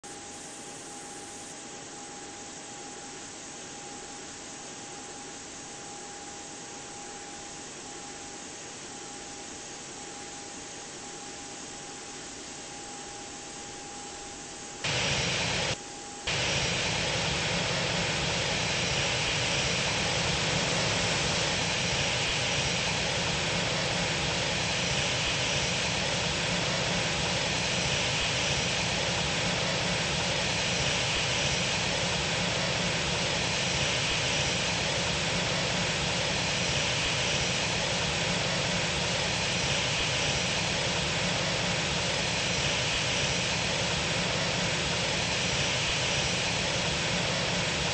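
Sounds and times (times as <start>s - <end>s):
jet engine noise: 0.0s - 3.7s, 14.4s - 47.9s.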